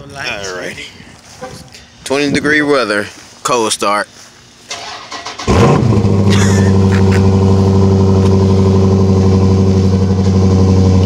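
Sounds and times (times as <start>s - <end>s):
car engine starting and idling: 4.7s - 11.0s.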